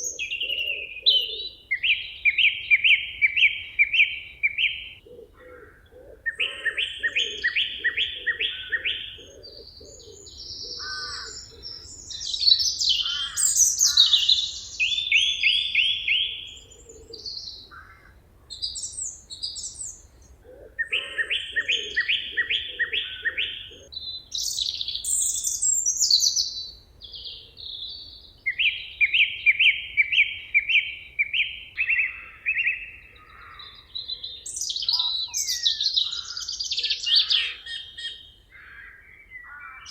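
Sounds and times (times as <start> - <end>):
songbirds singing: 0.0 - 39.9
high bird trills: 3.8 - 18.1.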